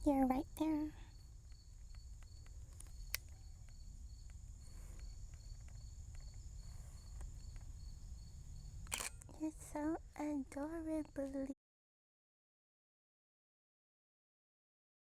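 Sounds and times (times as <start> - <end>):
insects chirping: 0.0 - 11.5
sharp click: 1.5 - 3.8, 8.8 - 9.3.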